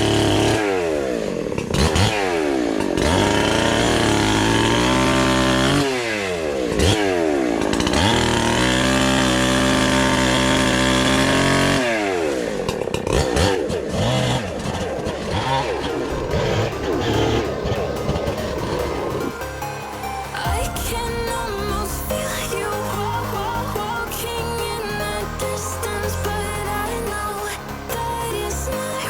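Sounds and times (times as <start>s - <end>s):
chainsaw cutting wood: 0.0s - 19.4s.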